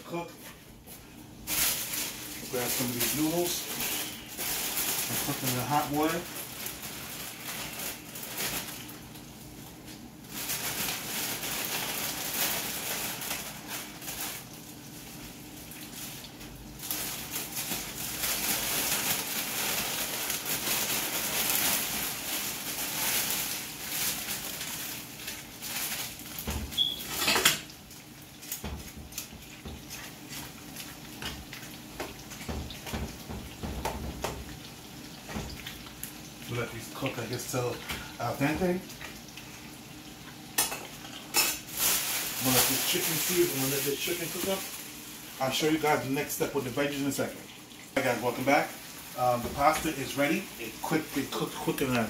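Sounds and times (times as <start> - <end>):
plastic bag crinkling: 1.4 - 9.4, 10.2 - 27.2, 41.0 - 47.4, 48.0 - 52.0
chicken sizzling in hot oil: 1.5 - 52.0.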